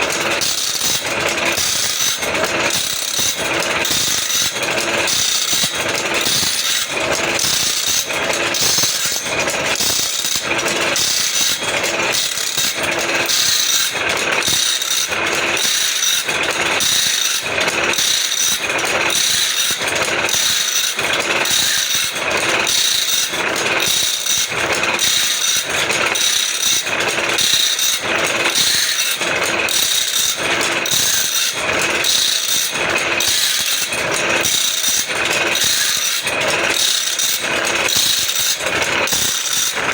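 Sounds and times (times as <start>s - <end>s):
grinding wheel on saw teeth: 0.0s - 39.9s.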